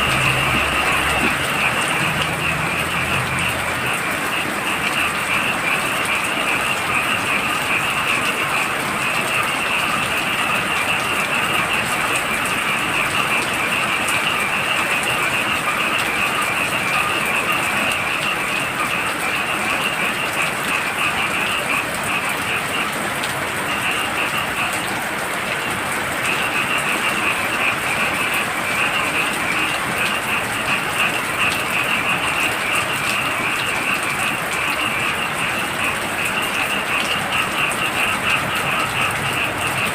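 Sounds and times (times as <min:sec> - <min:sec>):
frogs calling in high trill: 0:00.0 - 0:39.9
heavy rain falling: 0:00.0 - 0:39.9.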